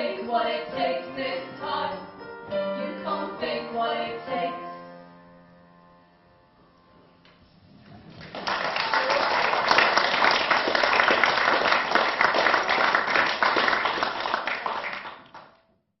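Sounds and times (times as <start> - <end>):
audience clapping: 8.0 - 15.6.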